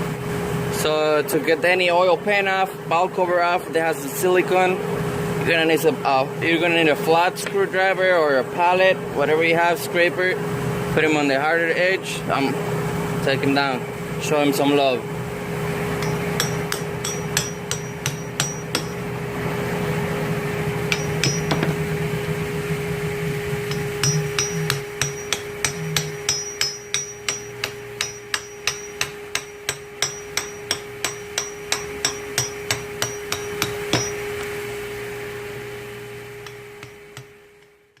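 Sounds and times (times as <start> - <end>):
steady hum: 12.0 - 38.0
hammer striking metal blade: 16.0 - 19.0, 20.9 - 21.8, 23.7 - 34.6, 36.4 - 37.3.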